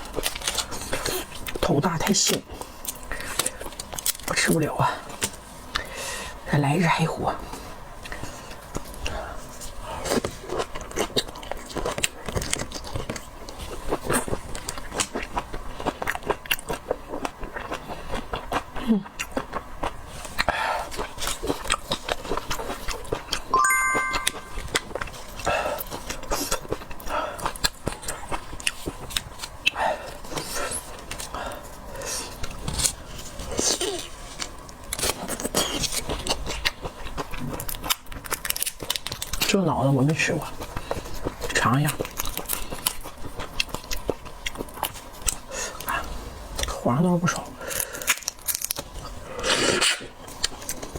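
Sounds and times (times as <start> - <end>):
shellfish shell cracking and chewing: 0.0 - 5.9, 10.0 - 23.4, 32.3 - 46.8, 47.6 - 50.9.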